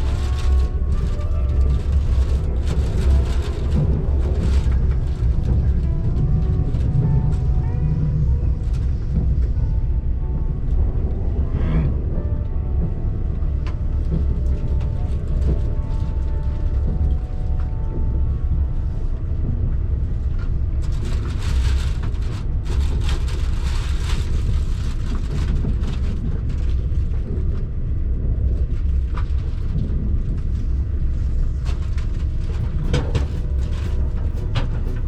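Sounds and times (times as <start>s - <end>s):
high-speed train rumbling: 0.0s - 35.0s
rattling clatter: 28.7s - 35.0s.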